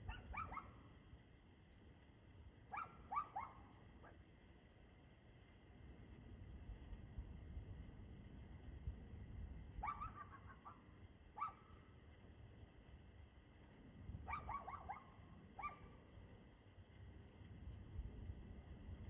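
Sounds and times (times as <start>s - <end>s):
dog barking faintly: 0.0s - 0.9s, 2.7s - 4.2s, 9.8s - 11.8s, 14.3s - 16.1s.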